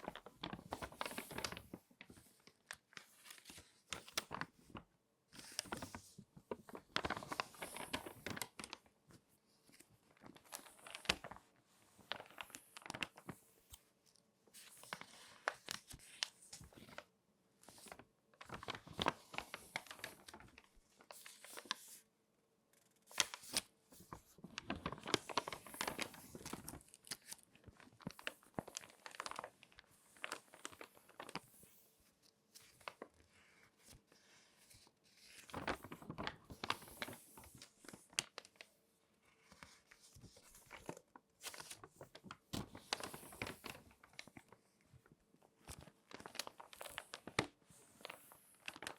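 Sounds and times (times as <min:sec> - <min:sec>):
magazine pages crinkling: 0:00.0 - 0:04.8, 0:05.4 - 0:08.9, 0:09.6 - 0:11.4, 0:12.0 - 0:13.4, 0:17.7 - 0:22.0, 0:23.1 - 0:31.6, 0:34.6 - 0:38.7, 0:39.4 - 0:44.6, 0:45.6 - 0:48.9.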